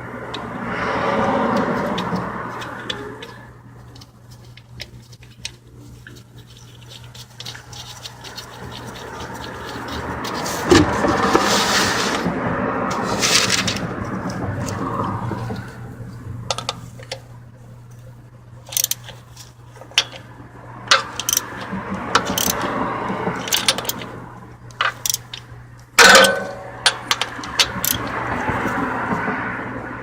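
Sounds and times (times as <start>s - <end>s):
steady low hum: 0.0s - 11.4s, 12.0s - 30.0s
ringing metallic clank: 26.0s - 27.1s
metal hand tools clinking: 26.0s - 28.1s.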